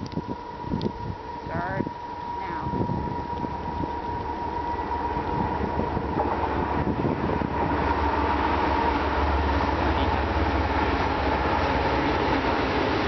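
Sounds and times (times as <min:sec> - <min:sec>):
steady high tone: 0:00.0 - 0:07.0
train engine rumble: 0:00.0 - 0:13.0.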